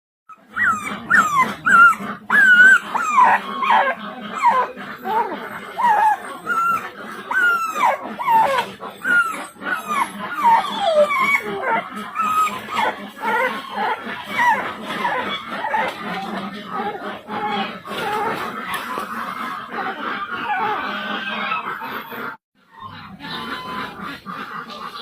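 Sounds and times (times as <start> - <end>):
dog whining: 0.3 - 19.2, 19.9 - 23.8.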